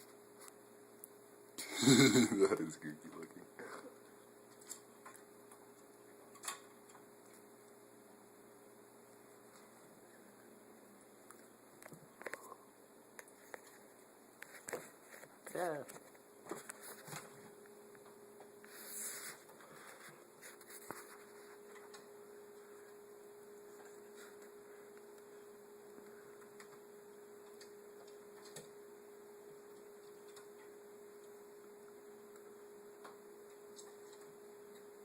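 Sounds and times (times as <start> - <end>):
faint electrical hum: 0.0 - 35.0.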